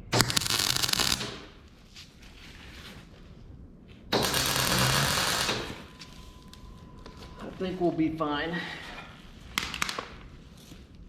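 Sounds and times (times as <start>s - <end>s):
welding arc crackling and buzzing: 0.0s - 2.9s, 4.1s - 6.6s.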